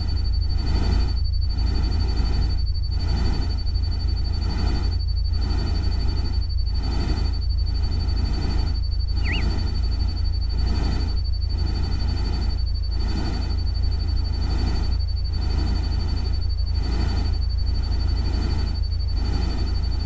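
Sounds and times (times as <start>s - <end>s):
bird-like chirp: 9.1s - 9.7s
thin steady high tone: 9.1s - 9.7s.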